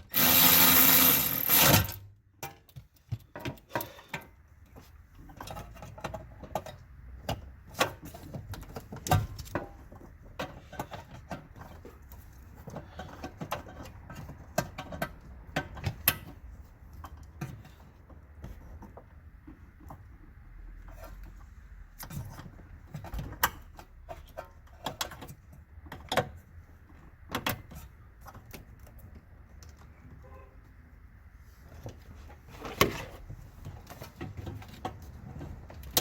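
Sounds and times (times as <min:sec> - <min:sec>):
power tool driving fasteners: 0:00.0 - 0:02.1.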